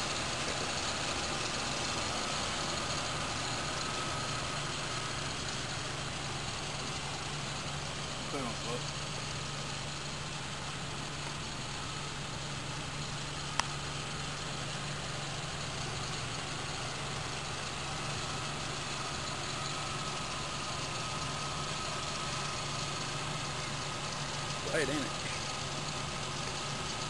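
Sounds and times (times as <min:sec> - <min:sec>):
vehicle engine idling: 0:00.0 - 0:27.0
sharp click: 0:13.5 - 0:13.7.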